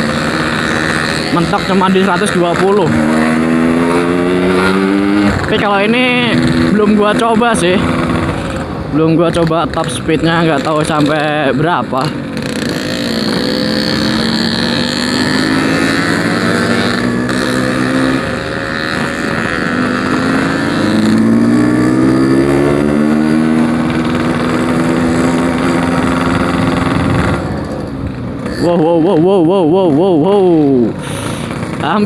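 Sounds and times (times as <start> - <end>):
motorcycle engine accelerating: 0.0 - 32.0.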